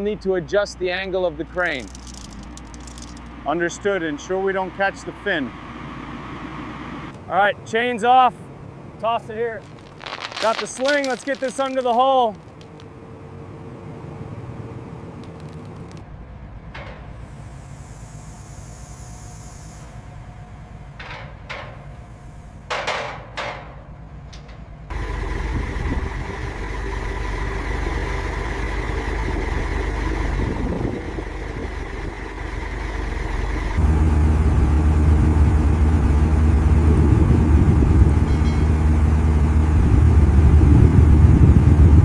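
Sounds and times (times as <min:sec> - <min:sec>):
heavy machinery engine running: 0:24.9 - 0:42.0.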